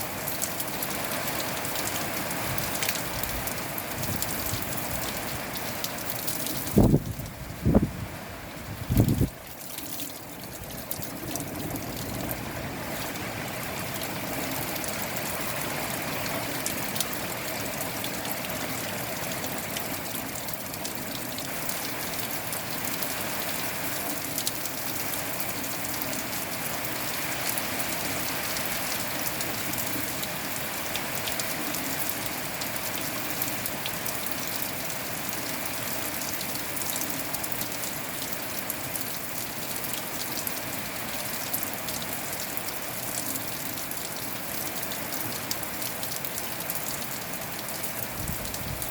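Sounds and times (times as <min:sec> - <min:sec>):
steady rain falling: 0:00.0 - 0:48.9
raindrop ticks: 0:00.2 - 0:07.4, 0:09.0 - 0:12.4.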